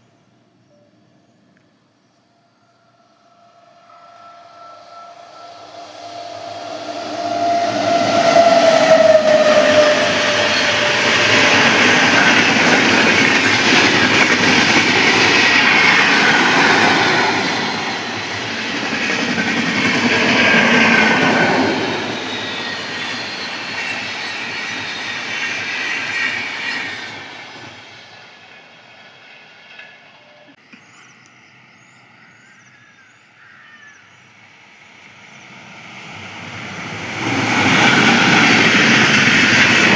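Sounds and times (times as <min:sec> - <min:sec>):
train wheels rumbling and rattling: 0:06.3 - 0:27.9, 0:35.8 - 0:39.9.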